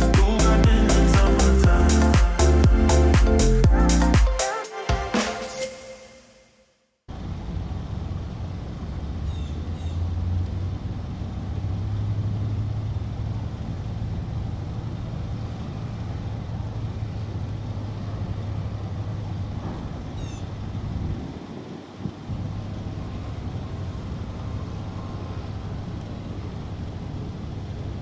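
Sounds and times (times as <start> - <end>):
low mechanical rumble: 0.0 - 4.2.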